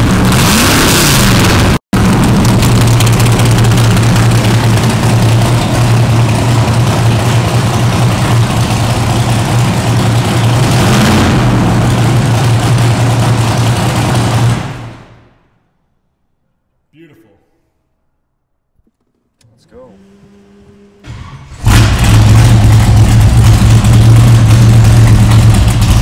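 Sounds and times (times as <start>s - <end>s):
car engine idling loudly: 0.0s - 15.1s, 21.5s - 26.0s.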